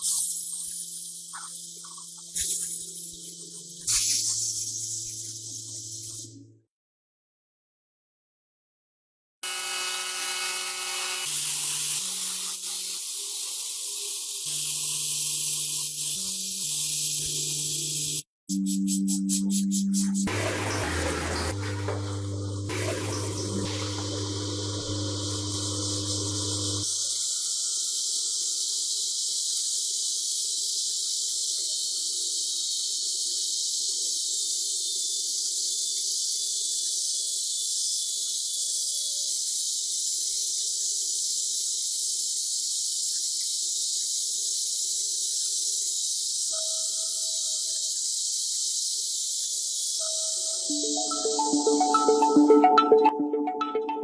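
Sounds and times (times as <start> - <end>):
steady high hiss: 0.0 - 6.4, 36.2 - 52.8.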